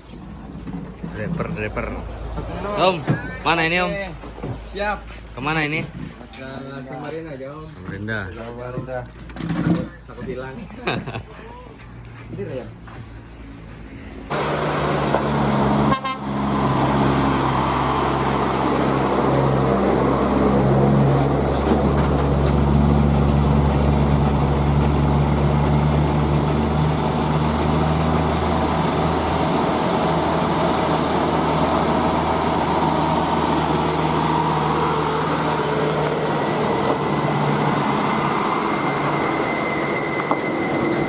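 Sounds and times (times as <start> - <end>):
diesel truck engine droning: 0.0 - 5.9, 12.5 - 41.0
road noise: 0.0 - 41.0
thin high whine: 31.1 - 41.0.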